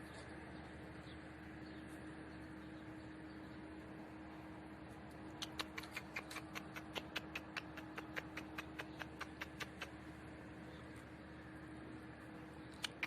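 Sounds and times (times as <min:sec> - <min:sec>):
faint steady hum: 0:00.0 - 0:13.0
rapid sharp clicks: 0:05.3 - 0:10.0, 0:12.7 - 0:13.0.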